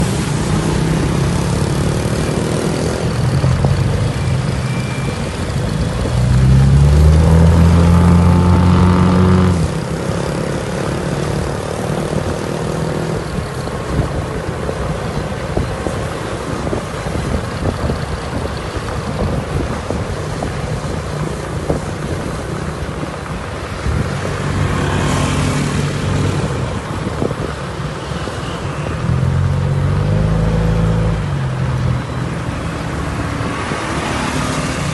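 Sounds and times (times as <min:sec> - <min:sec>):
car engine revving: 0:05.8 - 0:13.2.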